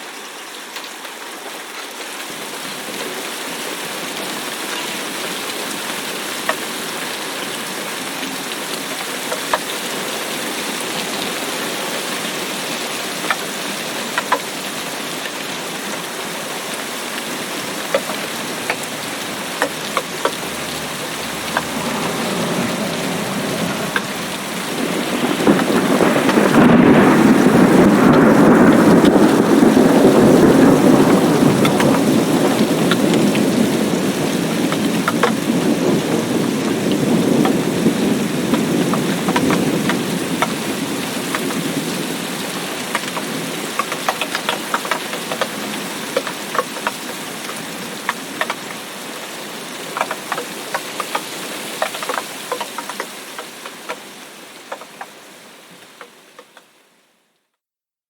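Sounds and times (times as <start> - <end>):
steady rain: 0.0 - 57.6
raindrops clicking: 8.2 - 10.1, 13.2 - 14.7, 17.1 - 33.5, 34.7 - 35.6, 38.5 - 48.8, 49.9 - 54.1, 54.7 - 55.2, 55.8 - 56.7
thunder rumbling: 17.3 - 42.1.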